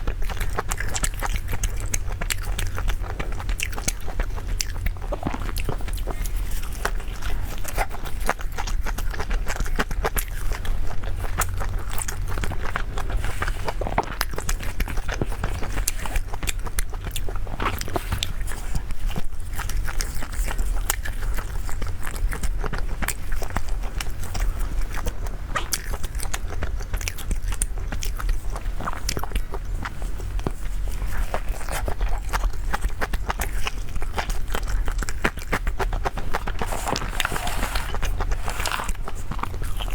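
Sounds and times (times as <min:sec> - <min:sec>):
chewing and biting: 0:00.0 - 0:39.9.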